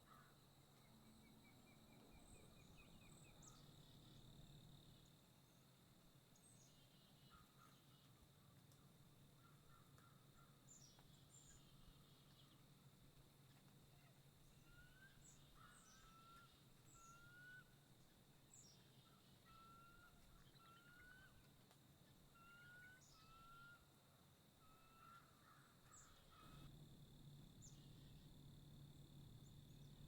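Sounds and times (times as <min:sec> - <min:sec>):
faint birdsong: 0:00.0 - 0:30.0
steady low hum: 0:26.4 - 0:30.0.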